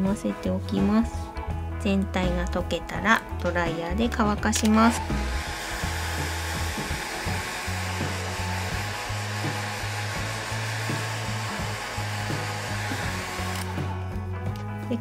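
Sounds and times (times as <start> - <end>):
background music: 0.0 - 15.0
hair dryer blowing: 4.6 - 14.2.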